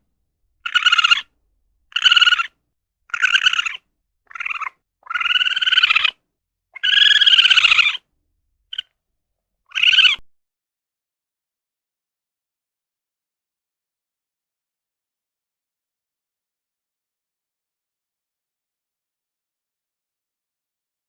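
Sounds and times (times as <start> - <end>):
high-pitched buzzy animal calls: 0.6 - 1.2, 2.0 - 2.5, 3.1 - 6.2, 6.8 - 8.0, 9.7 - 10.2.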